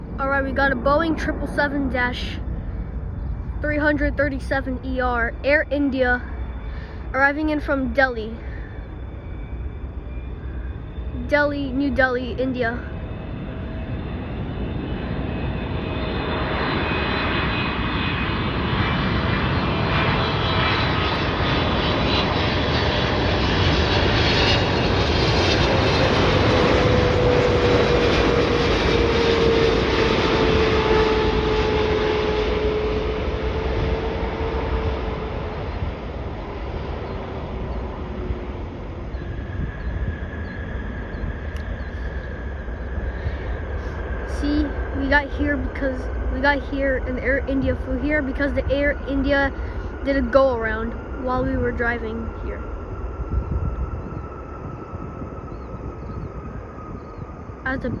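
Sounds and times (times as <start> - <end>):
engine whine falling in pitch: 0.0 - 58.0
jet airliner passing: 0.0 - 58.0.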